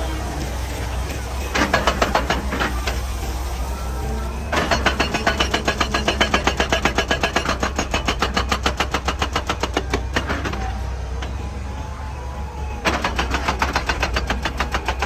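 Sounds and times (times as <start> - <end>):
diesel engine running: 0.0 - 15.0
hydraulic breaker hammering rock: 0.0 - 15.0.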